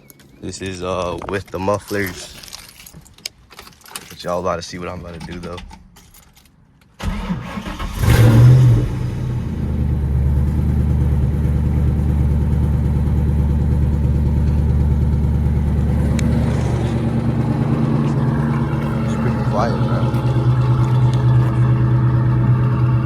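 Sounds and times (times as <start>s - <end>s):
car engine starting and idling: 7.0s - 23.0s
starter cranking: 14.4s - 23.0s.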